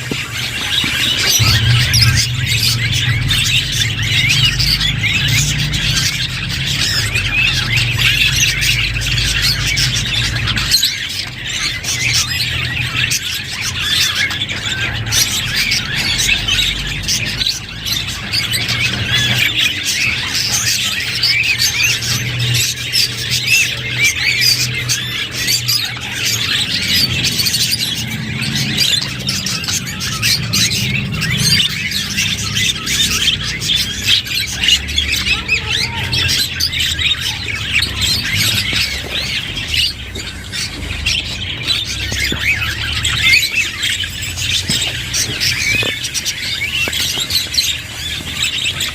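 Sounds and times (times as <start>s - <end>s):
budgerigars chattering: 0.0s - 48.9s
low hum: 0.5s - 10.7s.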